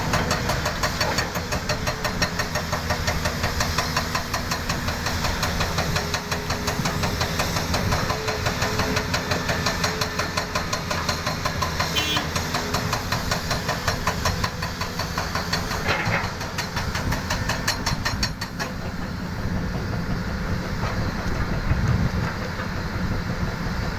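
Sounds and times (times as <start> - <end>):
engine running: 0.0 - 23.9.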